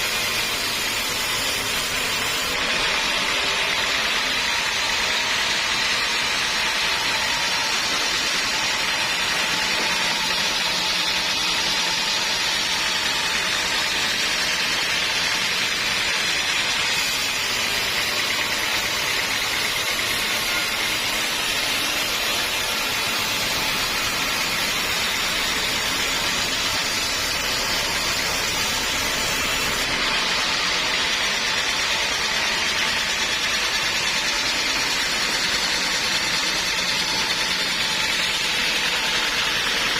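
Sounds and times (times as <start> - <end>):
sawmill machinery whining: 0.0 - 39.9.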